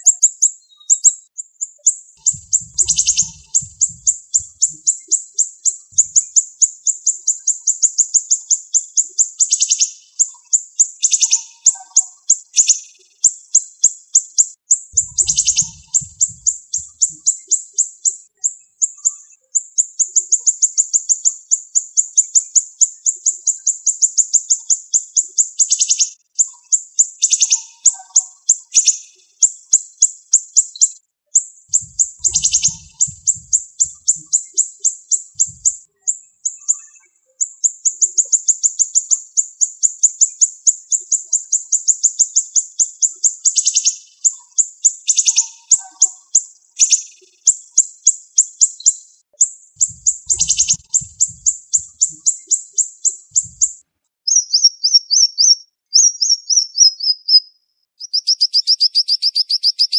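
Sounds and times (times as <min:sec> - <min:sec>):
bird singing high sharp notes: 0:02.2 - 0:06.5, 0:14.9 - 0:17.5, 0:31.7 - 0:37.6, 0:49.8 - 0:59.9.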